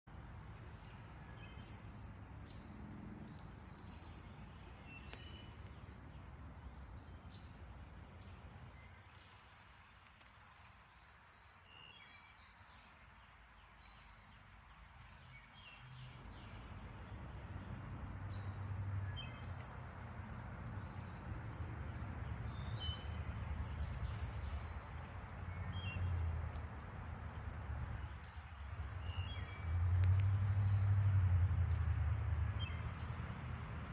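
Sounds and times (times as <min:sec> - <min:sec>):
insect drone: 0:00.1 - 0:33.9
bird chirps: 0:03.3 - 0:05.9, 0:21.9 - 0:26.6.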